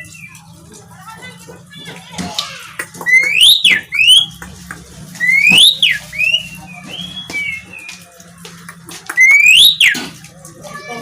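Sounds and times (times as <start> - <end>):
starling singing whistles: 3.1 - 4.4, 5.2 - 8.0, 9.2 - 10.0.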